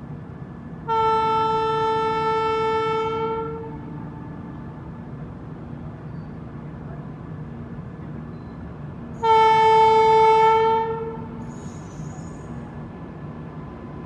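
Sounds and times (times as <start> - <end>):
locomotive horn blast: 0.9 - 4.8, 9.2 - 11.5.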